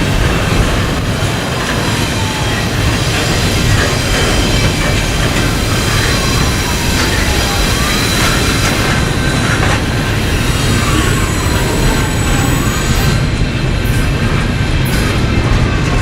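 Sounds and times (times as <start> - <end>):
freight train wheels rumbling: 0.0 - 16.0
sharp clicks of wheels on rail: 0.0 - 16.0
wheel squeal: 1.7 - 13.3.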